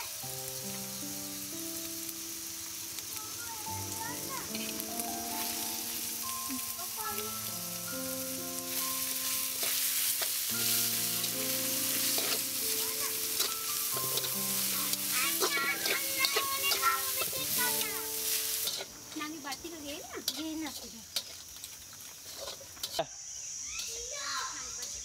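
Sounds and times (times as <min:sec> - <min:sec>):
vegetables sizzling in oil: 0:00.0 - 0:25.0
spatula scraping pan: 0:09.0 - 0:23.0.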